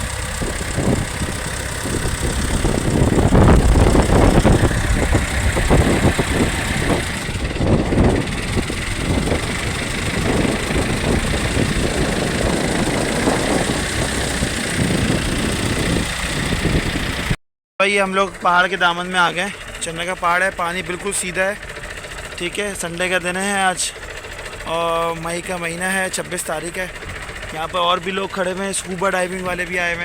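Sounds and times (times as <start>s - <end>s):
wind buffeting microphone: 0.0s - 17.4s
boat engine running: 0.0s - 30.0s.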